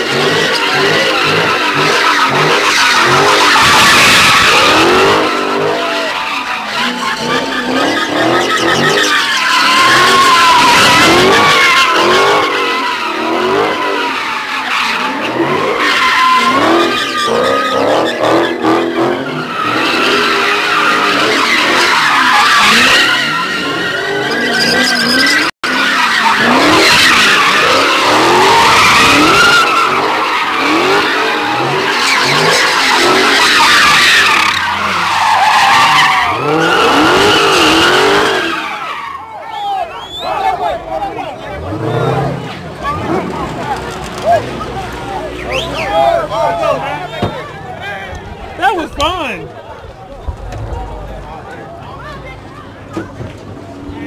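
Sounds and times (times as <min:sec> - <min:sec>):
engine revving: 0:00.0 - 0:06.1, 0:06.7 - 0:14.2, 0:35.8 - 0:38.6, 0:40.5 - 0:47.4
tires squealing: 0:00.0 - 0:54.0.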